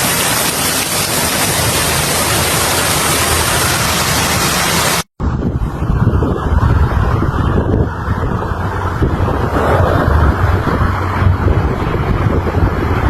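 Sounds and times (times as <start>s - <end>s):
hail and rain pelting: 0.0s - 5.0s
wind buffeting microphone: 5.2s - 13.0s.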